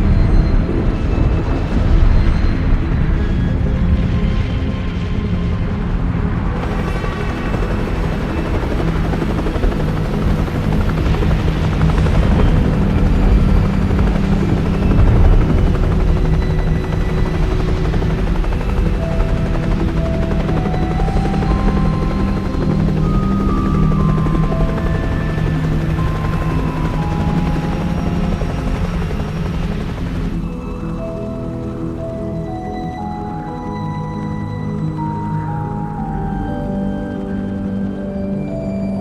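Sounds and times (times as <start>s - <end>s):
melody of held notes: 0.0s - 39.0s
music playing: 0.0s - 39.0s
loud low droning rumble: 10.0s - 32.3s.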